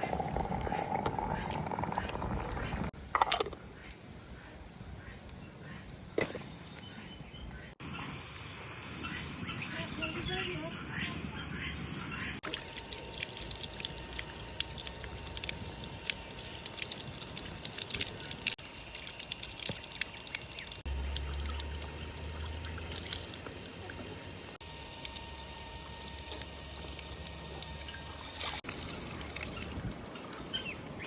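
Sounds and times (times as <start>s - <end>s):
water pouring and trickling: 0.0s - 3.0s, 12.4s - 31.0s.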